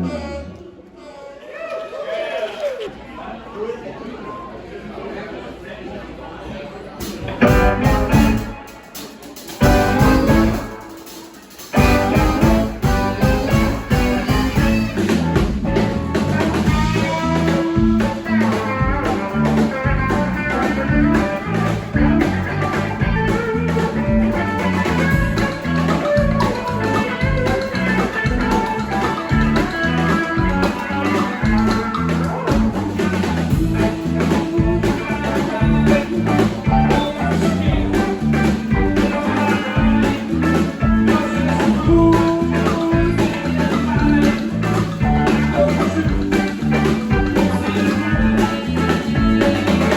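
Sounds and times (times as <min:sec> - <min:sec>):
bass guitar: 0:00.0 - 0:00.8, 0:07.0 - 0:49.9
drum kit beat: 0:07.0 - 0:49.9
electric guitar lines: 0:07.1 - 0:49.9.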